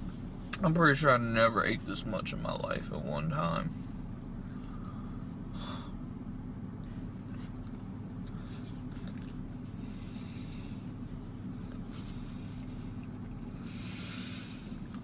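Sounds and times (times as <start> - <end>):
low hum: 0.0 - 15.0
man chewing: 6.8 - 10.7, 11.7 - 14.0
soft breathy exhalations: 9.7 - 14.9.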